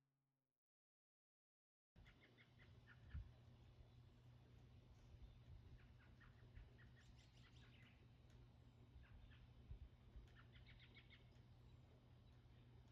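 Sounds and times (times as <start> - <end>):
bird chirping: 2.0 - 4.2, 5.0 - 12.9
low steady hum: 2.0 - 12.9.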